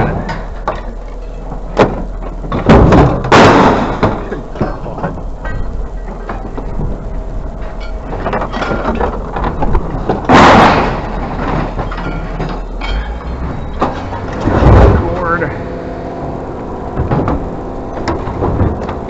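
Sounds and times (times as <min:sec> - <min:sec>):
scrap metal knocks and clatter: 0:00.0 - 0:07.0, 0:07.6 - 0:15.4
steady low hum: 0:00.0 - 0:19.0
loud crash: 0:02.6 - 0:04.4, 0:10.0 - 0:19.0.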